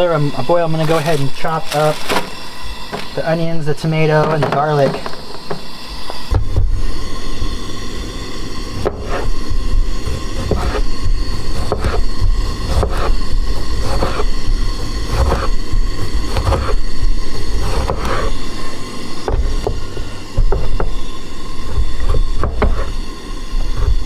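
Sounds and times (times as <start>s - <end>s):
knife chopping on cutting board: 10.0s - 24.0s.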